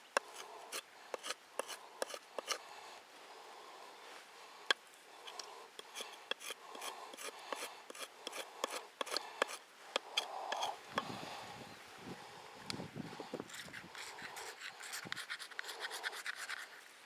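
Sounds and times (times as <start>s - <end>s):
knife shaving wood: 0.2s - 2.6s, 5.2s - 10.8s, 13.5s - 17.0s.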